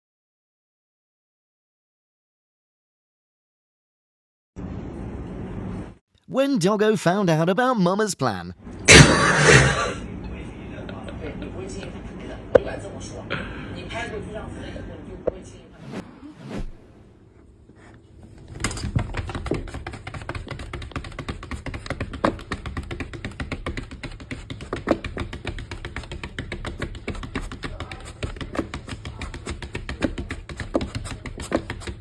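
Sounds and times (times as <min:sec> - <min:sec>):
rapid clicking and tapping: 0:19.0 - 0:32.0.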